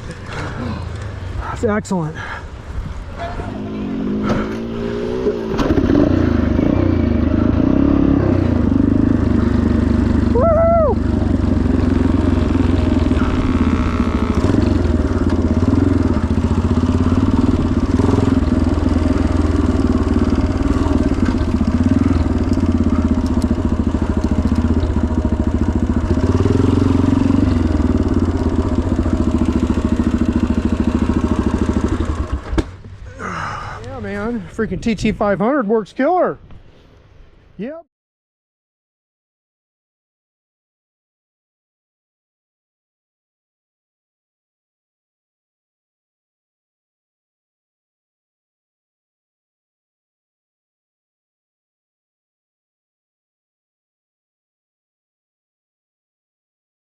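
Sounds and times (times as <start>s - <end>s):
motorcycle engine pulling away: 3.4s - 33.6s.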